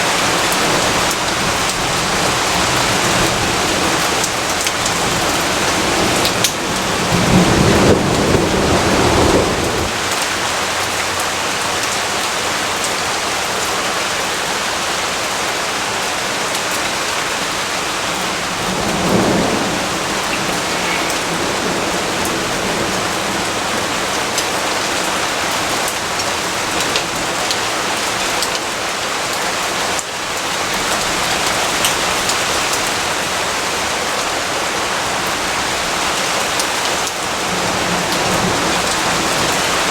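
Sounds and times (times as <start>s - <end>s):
steady rain: 0.0s - 39.9s
thunder rumbling: 0.1s - 10.7s, 17.4s - 26.0s.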